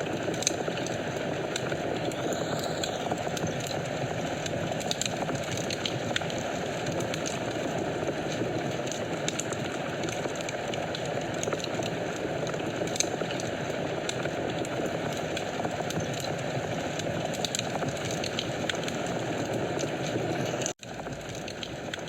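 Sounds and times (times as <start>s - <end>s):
fire crackling and popping: 0.0s - 22.0s
rush of flames: 0.0s - 22.0s.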